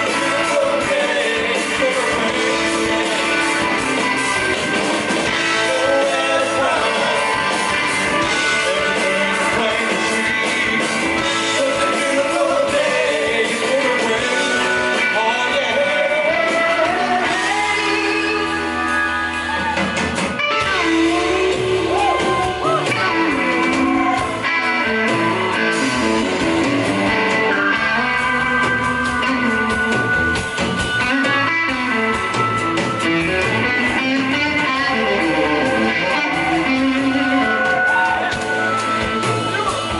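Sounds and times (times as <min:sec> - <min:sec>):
person singing: 0:00.0 - 0:04.0, 0:05.4 - 0:26.2, 0:33.5 - 0:39.9
electric guitar: 0:00.0 - 0:39.9.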